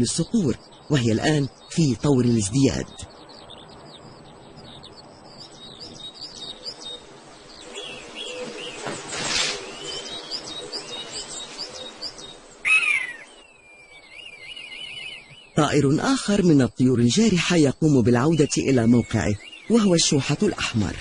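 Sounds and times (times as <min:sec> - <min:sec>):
birds chirping: 0:00.0 - 0:21.0
bird falling call: 0:02.9 - 0:15.6
long wavering bird whistle: 0:12.6 - 0:15.6.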